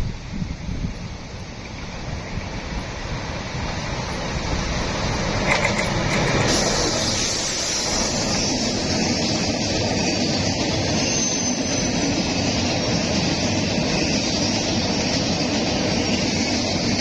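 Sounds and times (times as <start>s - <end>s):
train approaching on track: 0.0s - 17.0s
high hiss: 6.4s - 9.9s.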